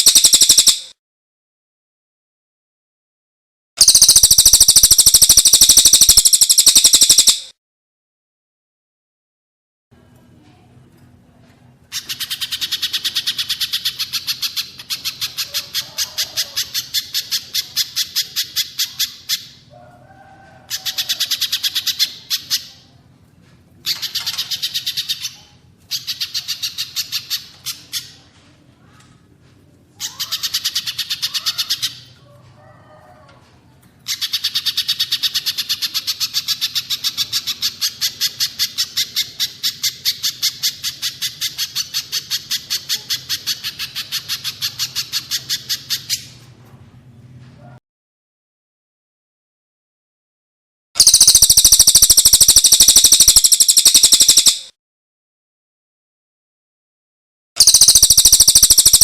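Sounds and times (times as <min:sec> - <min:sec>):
songbird rapid sharp calls: 0:00.0 - 0:00.9, 0:03.8 - 0:07.5, 0:51.0 - 0:54.7, 0:57.6 - 0:59.0.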